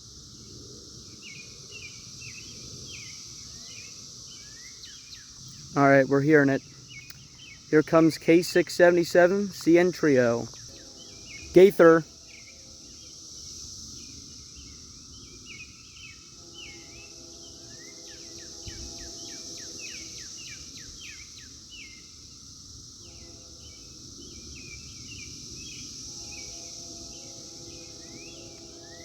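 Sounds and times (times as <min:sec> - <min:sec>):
songbirds chirping: 0:00.0 - 0:22.2, 0:23.0 - 0:29.0
cicadas buzzing: 0:00.0 - 0:29.0
distant train horn: 0:07.8 - 0:12.2, 0:16.3 - 0:20.4, 0:23.0 - 0:24.2, 0:25.9 - 0:29.0.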